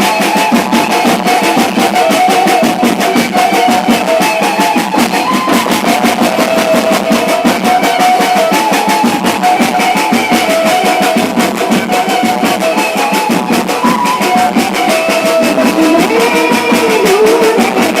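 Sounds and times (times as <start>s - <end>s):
loud music over sound system: 15.4s - 18.0s.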